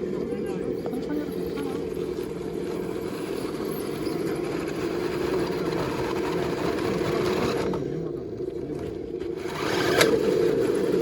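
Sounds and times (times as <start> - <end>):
toy car electric motor whirring: 2.1 - 7.7, 9.4 - 11.0.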